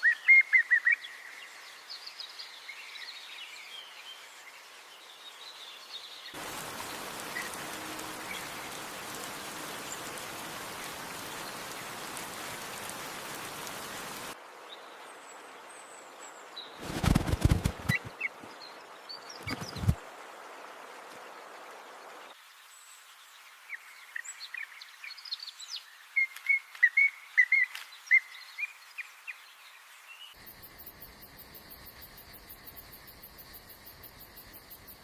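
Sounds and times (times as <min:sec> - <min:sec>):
rain-like hiss: 0:00.0 - 0:35.0
small birds chirping: 0:16.4 - 0:20.0
low rustling thumps: 0:16.8 - 0:18.2.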